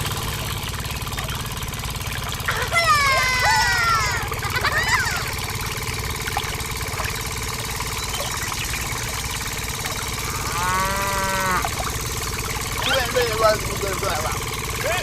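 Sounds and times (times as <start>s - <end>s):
steady mechanical hum: 0.0s - 15.0s
cow mooing: 10.3s - 11.8s.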